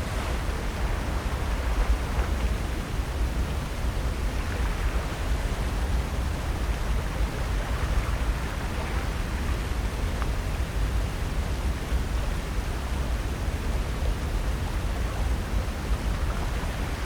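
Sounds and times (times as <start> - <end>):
ocean surf: 0.0 - 9.9
wind: 0.0 - 17.0.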